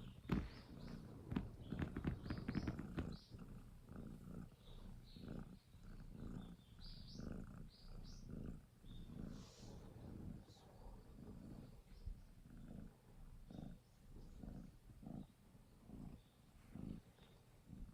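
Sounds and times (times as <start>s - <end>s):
cat purring: 0.0s - 17.9s.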